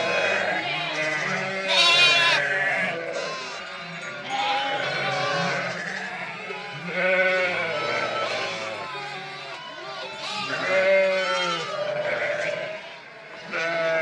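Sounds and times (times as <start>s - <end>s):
sheep bleating: 0.0s - 14.0s.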